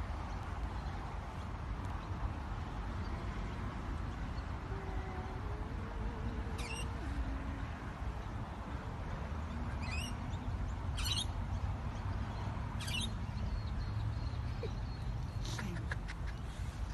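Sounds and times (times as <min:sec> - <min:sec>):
bird squeaky calls: 0:06.6 - 0:06.8, 0:11.0 - 0:11.3, 0:12.8 - 0:13.2.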